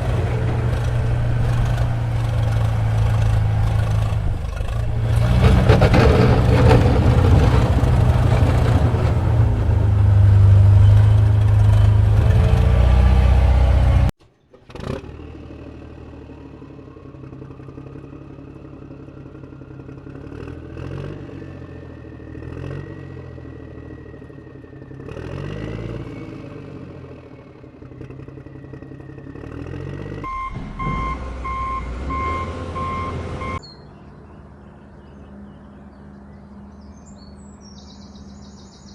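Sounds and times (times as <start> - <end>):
loud vehicle engine running: 0.0 - 38.6
short beeps: 30.3 - 33.6.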